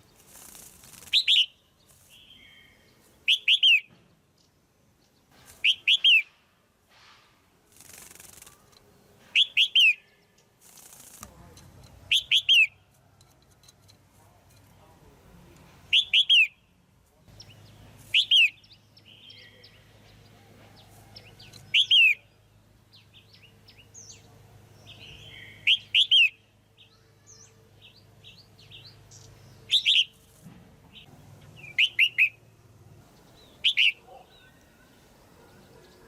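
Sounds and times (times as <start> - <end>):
bird calling sweeping notes: 5.6 - 6.4, 12.1 - 12.8, 31.6 - 32.4.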